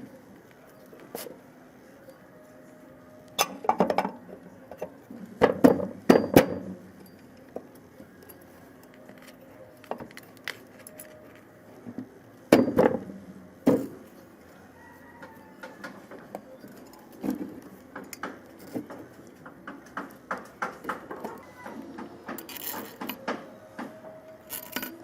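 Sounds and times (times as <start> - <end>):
metal parts and tools clinking: 8.2 - 11.5, 22.3 - 25.0.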